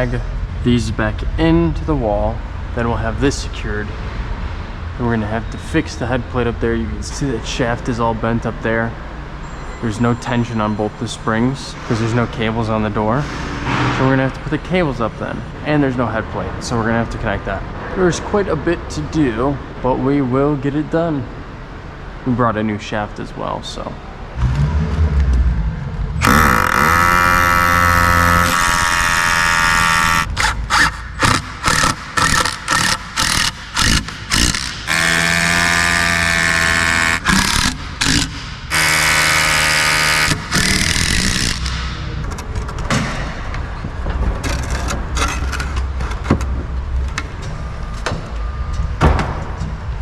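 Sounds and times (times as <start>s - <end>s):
power tool whining: 26.2s - 42.0s.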